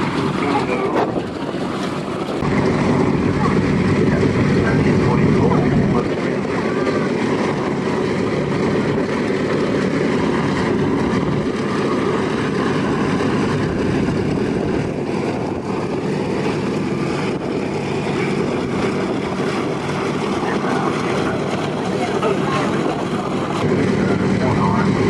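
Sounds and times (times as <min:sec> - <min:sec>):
propeller planes droning past: 0:00.0 - 0:25.0.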